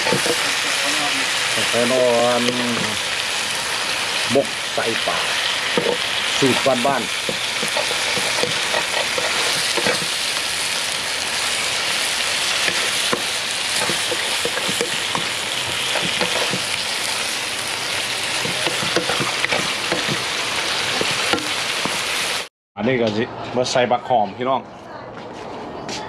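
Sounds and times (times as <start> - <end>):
utensil scraping and tapping pan: 0.0 - 0.5, 5.7 - 10.2, 12.6 - 16.7, 18.4 - 20.3, 20.9 - 22.0
fish sizzling in a pan: 0.0 - 22.5.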